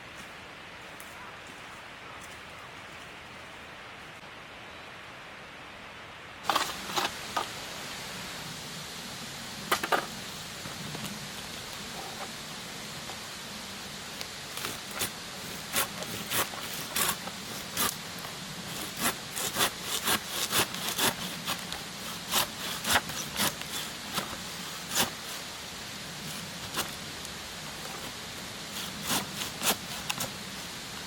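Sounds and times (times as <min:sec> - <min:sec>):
steady background hiss: 0:00.0 - 0:31.0
blade rasping wood: 0:14.5 - 0:25.5, 0:27.8 - 0:30.5.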